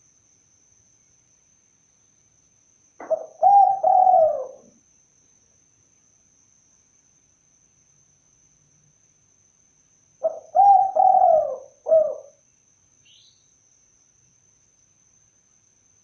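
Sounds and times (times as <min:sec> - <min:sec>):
dove cooing: 0:03.0 - 0:04.8, 0:10.2 - 0:12.4.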